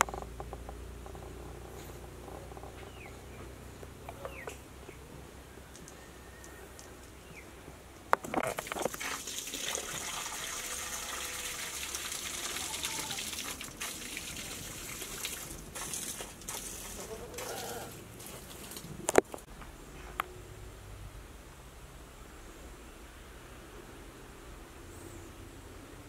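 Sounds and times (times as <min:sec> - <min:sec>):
water pouring: 0:08.2 - 0:19.2.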